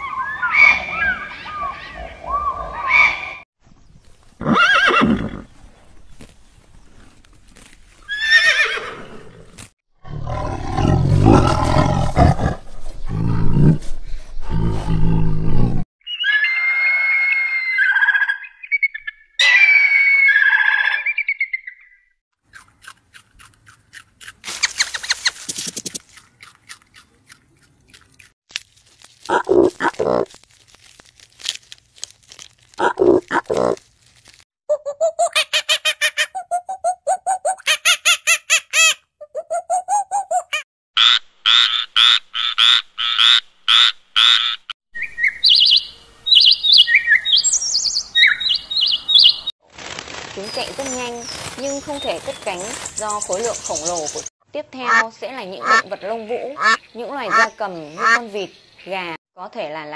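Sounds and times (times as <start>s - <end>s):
high ringing bird calls: 16.0s - 19.6s, 45.0s - 49.5s.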